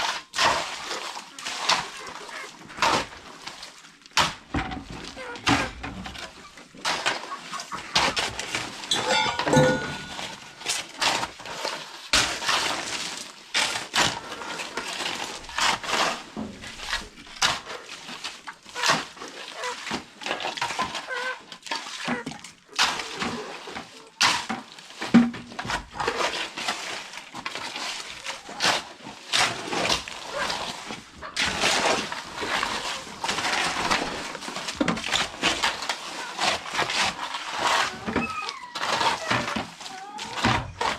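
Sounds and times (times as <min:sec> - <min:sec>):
metal tools scraping cement mix: 0:00.1 - 0:40.9.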